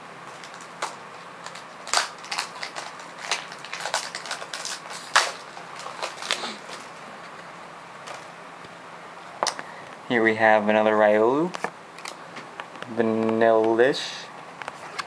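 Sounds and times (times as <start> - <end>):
cards and foil pack crinkling: 0.3 - 7.0.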